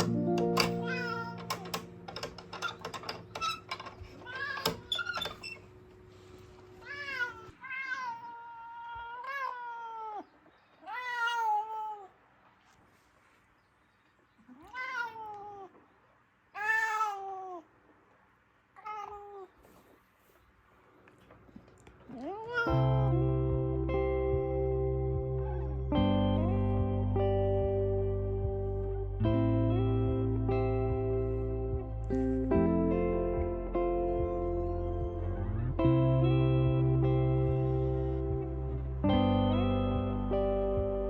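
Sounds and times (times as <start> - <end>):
soft guitar music: 0.0 - 3.3, 22.7 - 41.0
cat meowing: 0.8 - 1.8, 4.2 - 4.8, 6.8 - 12.2, 14.5 - 15.8, 16.6 - 17.7, 18.8 - 19.7, 22.1 - 23.2.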